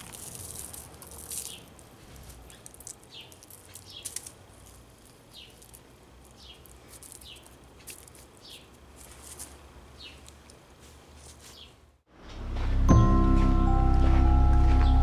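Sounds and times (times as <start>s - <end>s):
faint clicks and rustles: 0.0s - 9.6s
bird chirping: 5.3s - 7.6s, 8.4s - 8.7s, 9.9s - 10.4s.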